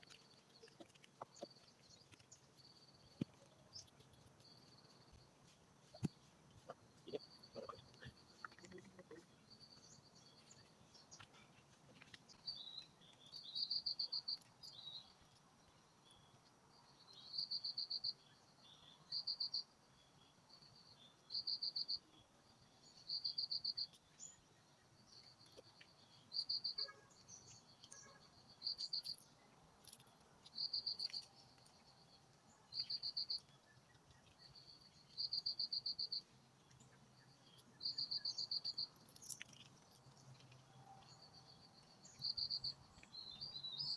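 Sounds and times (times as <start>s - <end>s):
insect trills: 25.0s - 43.9s.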